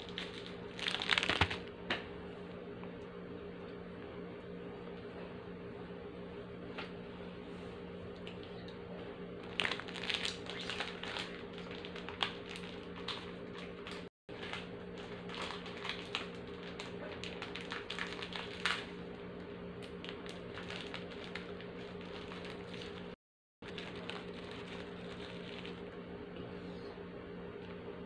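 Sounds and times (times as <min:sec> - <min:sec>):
steady low hum: 0:00.0 - 0:28.0
chewing crunchy biscuits: 0:09.4 - 0:19.2, 0:19.8 - 0:26.0.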